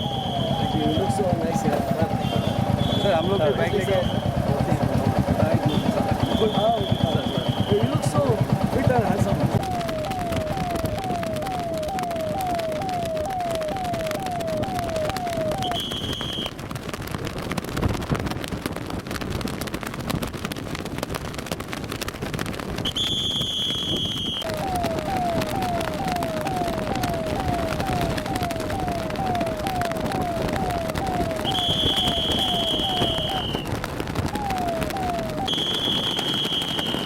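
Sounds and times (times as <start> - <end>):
shrill whistle blowing: 0.0 - 1.2, 2.2 - 4.3, 5.7 - 8.1, 15.1 - 16.5, 22.8 - 24.5, 31.4 - 33.7, 35.4 - 37.0
police siren sweeping: 0.0 - 16.5, 24.4 - 37.0
noisy din: 0.0 - 16.6, 22.9 - 37.0.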